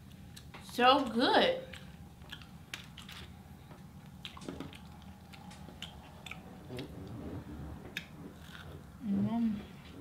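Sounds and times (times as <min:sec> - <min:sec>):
person chewing food: 0:00.0 - 0:00.6, 0:01.6 - 0:09.0.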